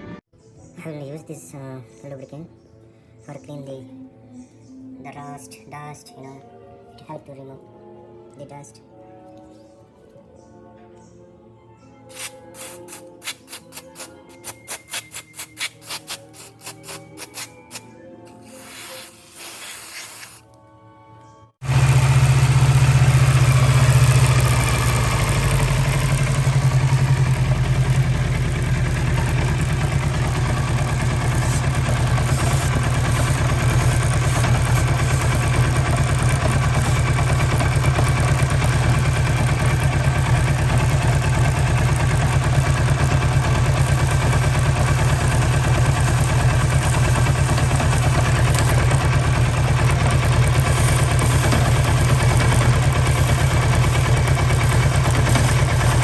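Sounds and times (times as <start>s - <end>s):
motorcycle engine idling: 21.6s - 56.0s.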